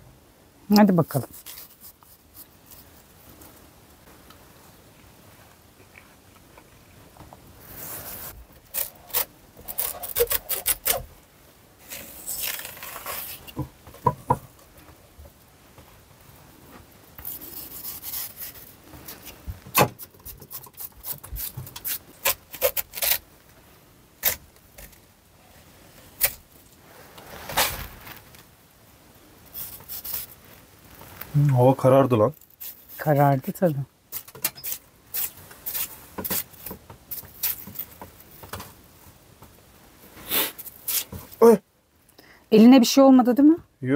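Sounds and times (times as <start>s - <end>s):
knife slicing watermelon rind: 8.2s - 11.0s, 17.2s - 18.7s, 19.7s - 23.2s, 29.6s - 30.4s.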